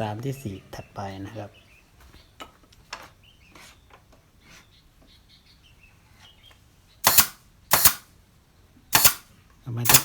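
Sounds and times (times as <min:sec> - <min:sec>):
nail gun shots: 0:07.0 - 0:08.1, 0:08.9 - 0:10.0.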